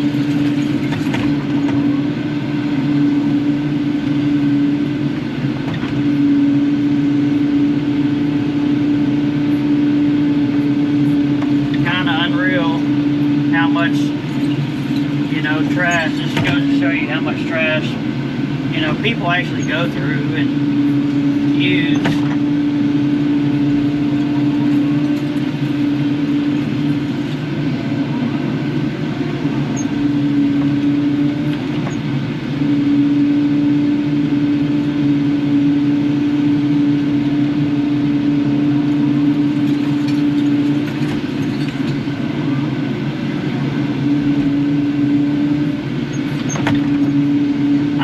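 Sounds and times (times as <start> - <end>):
excavator diesel engine running: 0.0 - 48.0
steady hum: 0.0 - 48.0.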